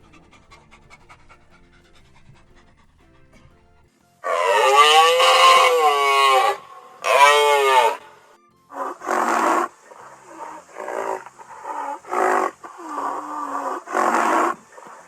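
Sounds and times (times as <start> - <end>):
big cat roaring: 4.2 - 8.2, 8.8 - 15.0.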